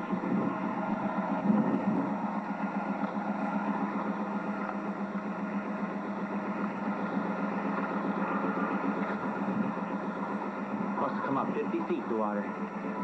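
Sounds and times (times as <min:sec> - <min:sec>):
road noise: 0:00.0 - 0:13.0
vehicle engine humming: 0:00.0 - 0:13.0.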